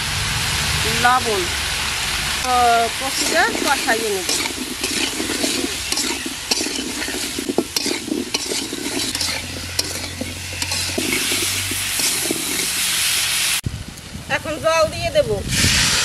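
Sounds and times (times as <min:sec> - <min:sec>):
food sizzling in hot oil: 0:00.0 - 0:13.6, 0:15.5 - 0:16.0
metal spatula scraping wok: 0:02.5 - 0:13.6.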